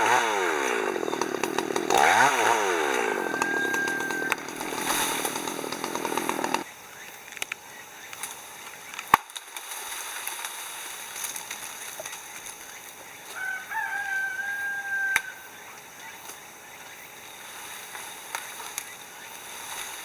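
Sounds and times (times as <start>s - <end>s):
rooster crowing: 0.0s - 6.6s, 13.3s - 15.5s
chainsaw running: 0.0s - 6.7s.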